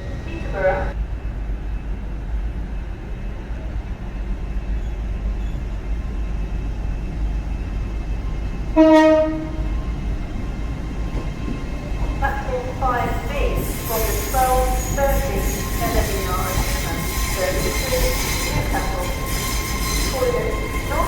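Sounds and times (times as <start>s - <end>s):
train rumbling: 0.0s - 21.0s
train horn note: 8.8s - 9.7s.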